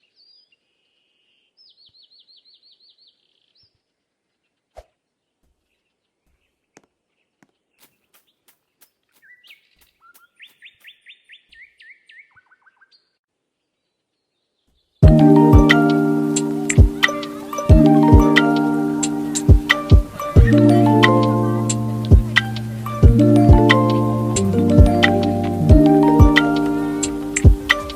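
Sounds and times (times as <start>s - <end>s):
bird singing whistled notes: 9.2s - 13.1s.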